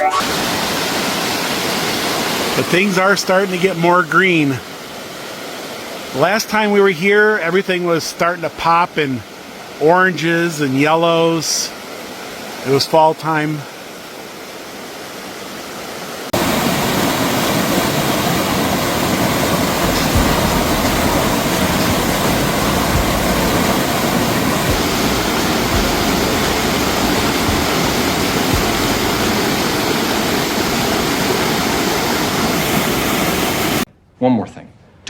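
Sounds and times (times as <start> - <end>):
waterfall rushing: 0.0 - 33.9
low thumps: 19.8 - 29.9.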